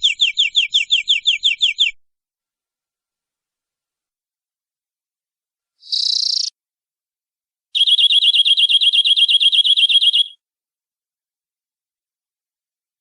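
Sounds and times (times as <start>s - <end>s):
canary singing: 0.0s - 2.0s, 5.8s - 6.5s, 7.8s - 10.4s.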